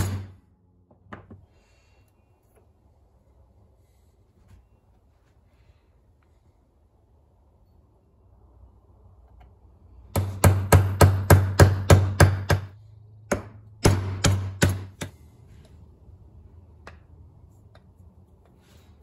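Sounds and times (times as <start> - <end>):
hammer striking metal: 0.0 - 0.4, 10.1 - 15.2.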